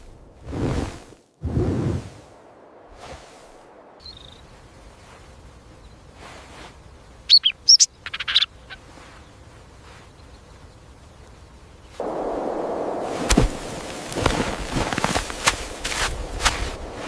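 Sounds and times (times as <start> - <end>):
faint natural background: 0.0 - 17.0
bird chirping and trilling: 4.0 - 4.4, 7.0 - 8.8.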